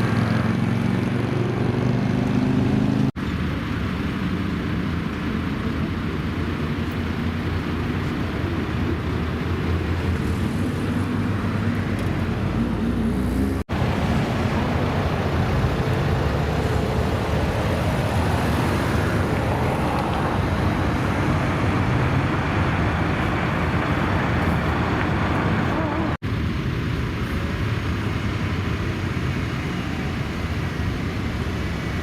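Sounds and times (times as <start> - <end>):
traffic noise: 0.0 - 32.0
car engines idling: 3.1 - 32.0.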